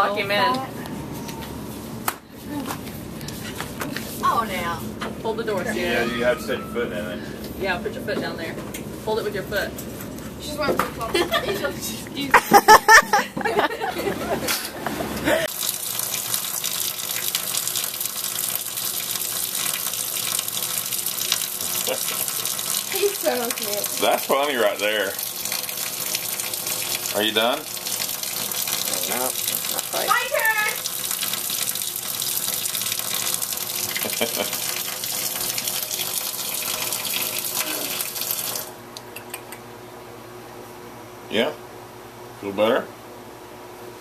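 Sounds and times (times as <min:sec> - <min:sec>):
water running: 0:15.3 - 0:38.8.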